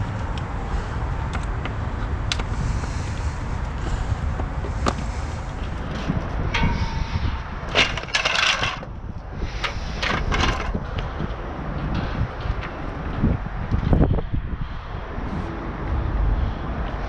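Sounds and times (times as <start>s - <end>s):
wood cracking and scraping: 7.7s - 9.0s.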